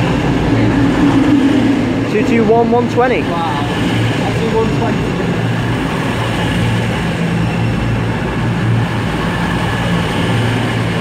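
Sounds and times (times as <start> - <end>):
diesel train engines humming: 0.0 - 11.0.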